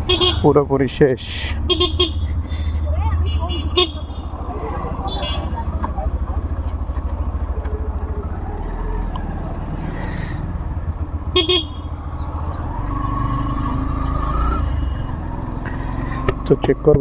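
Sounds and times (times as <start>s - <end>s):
vehicle horn beep: 0.0s - 0.6s, 1.6s - 2.5s, 3.1s - 6.2s, 11.2s - 12.2s, 14.7s - 15.2s
motorcycle engine running: 0.0s - 17.0s.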